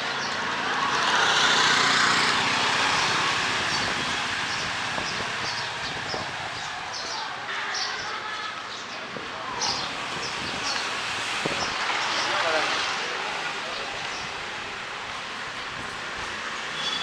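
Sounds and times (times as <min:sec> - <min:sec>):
vehicle passing on wet street: 0:00.0 - 0:07.5, 0:09.2 - 0:17.0.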